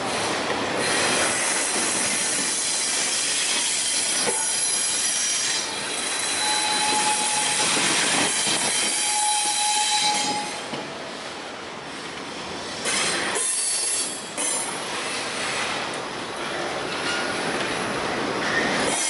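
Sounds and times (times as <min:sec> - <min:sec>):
train clatter: 0:00.0 - 0:11.0, 0:11.9 - 0:19.0
train wheels rolling on rails: 0:00.0 - 0:19.0
high wheel squeal: 0:02.4 - 0:10.6.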